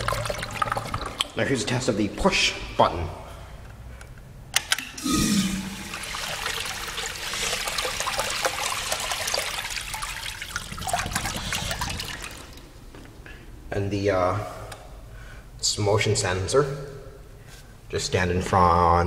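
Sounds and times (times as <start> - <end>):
water rushing in toilet flush: 0.0 - 1.9, 5.0 - 12.8.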